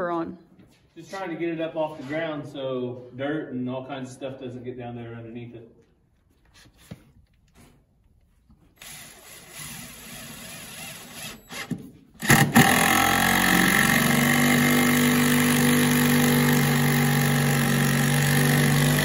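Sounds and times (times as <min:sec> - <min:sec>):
small engine running: 0:08.8 - 0:19.0.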